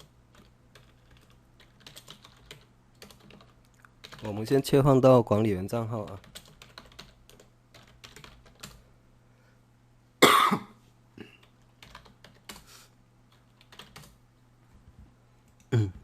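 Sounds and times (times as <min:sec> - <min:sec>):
keyboard typing: 0:00.0 - 0:04.3, 0:06.0 - 0:08.8, 0:11.4 - 0:12.7, 0:13.3 - 0:14.2
person coughing: 0:10.2 - 0:11.4, 0:15.7 - 0:16.0.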